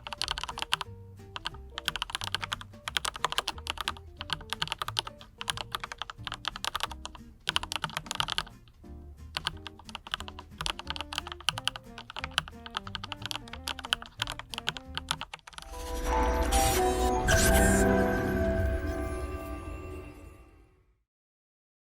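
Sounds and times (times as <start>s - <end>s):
mechanical keyboard typing: 0.0s - 8.6s, 9.3s - 15.7s
background music: 0.0s - 20.9s.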